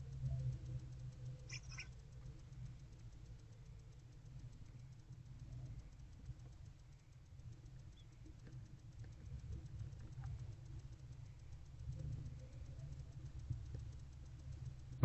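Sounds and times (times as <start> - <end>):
owlets scratching and tapping: 0.0 - 15.0
steady low rumble: 0.0 - 15.0.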